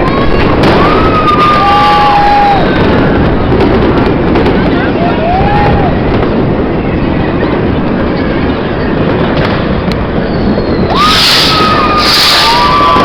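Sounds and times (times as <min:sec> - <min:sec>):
fireworks crackling: 0:00.0 - 0:13.0
steady high whistle: 0:10.2 - 0:13.0.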